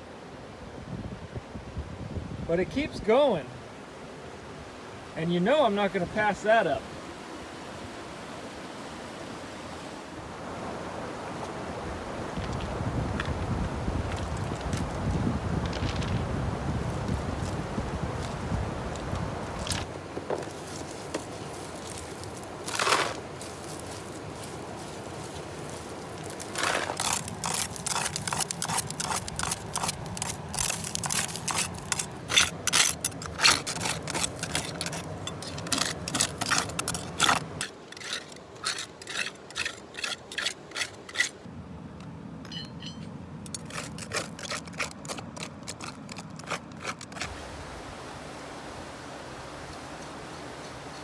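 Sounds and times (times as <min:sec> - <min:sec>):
hand tool scraping gravel: 0:19.7 - 0:41.4, 0:42.8 - 0:47.4.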